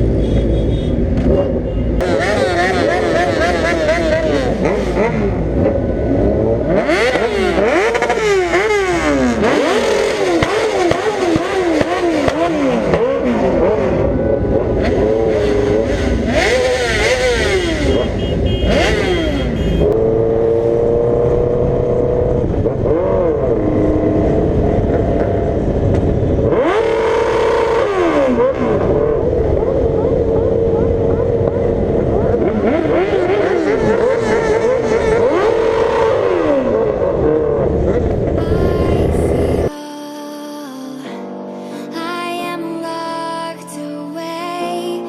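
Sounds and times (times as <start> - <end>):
motorcycle engines revving: 0.0 - 39.7
constant low rumble: 36.7 - 39.7.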